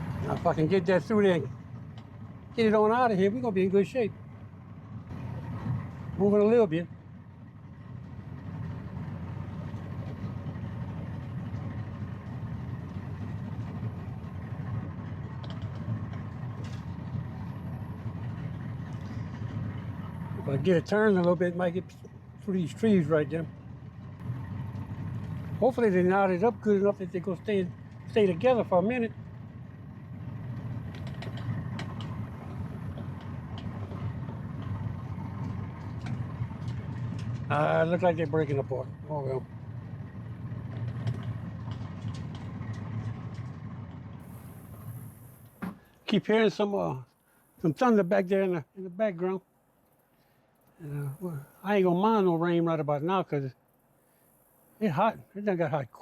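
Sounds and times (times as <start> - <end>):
boat motor droning: 0.0 - 56.0
engine humming steadily: 0.0 - 56.0.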